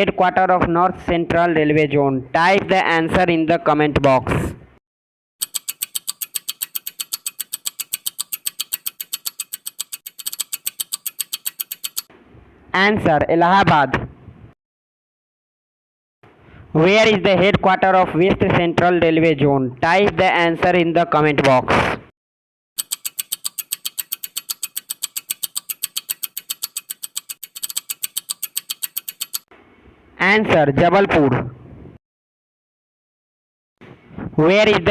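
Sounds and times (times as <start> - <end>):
rapid clock ticking: 5.4 - 12.1, 22.8 - 29.5.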